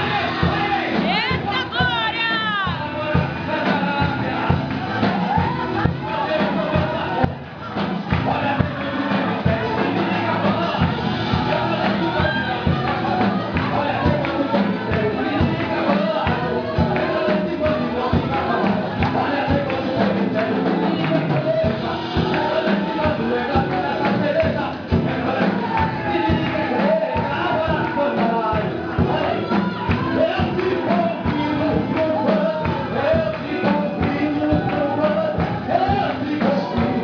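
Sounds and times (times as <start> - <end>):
gospel worship music: 0.0 - 37.0
voices singing: 0.0 - 37.0.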